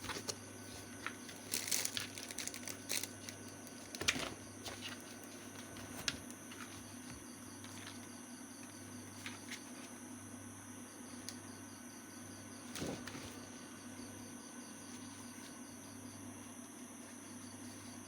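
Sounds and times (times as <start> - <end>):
rustling and crinkling: 0.0 - 8.1, 12.7 - 13.5.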